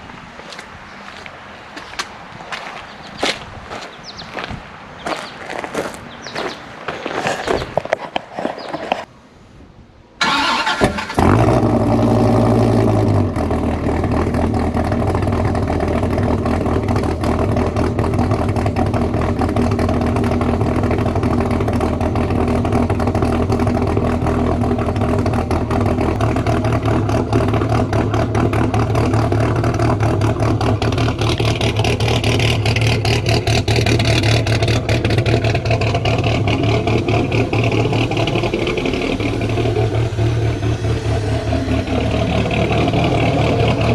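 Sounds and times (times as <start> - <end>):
car engine cranking and starting: 10.2 - 43.9
loud engine idle: 12.8 - 43.9.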